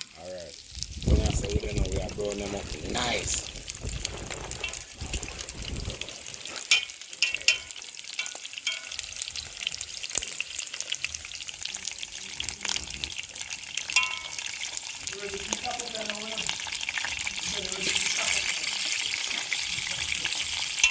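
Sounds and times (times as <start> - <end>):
food frying in hot oil: 0.0 - 20.9.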